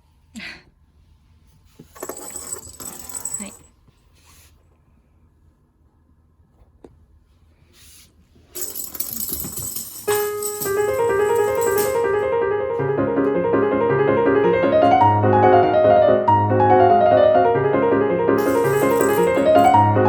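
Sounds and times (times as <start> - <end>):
rustling: 7.8 - 12.2
piano music: 10.1 - 20.0.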